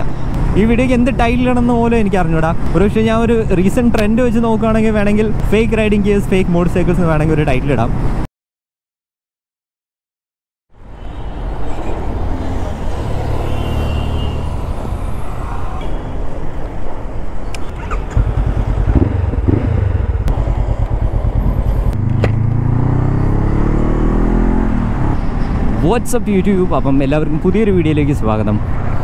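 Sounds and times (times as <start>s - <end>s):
motorcycle engine running: 17.8s - 24.0s.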